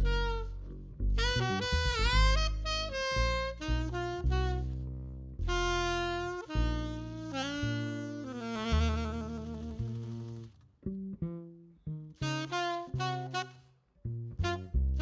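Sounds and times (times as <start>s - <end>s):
saxophone jazz melody: 0.0s - 4.8s, 5.4s - 10.5s, 12.2s - 13.6s, 14.4s - 15.0s
bass accompaniment: 0.0s - 15.0s.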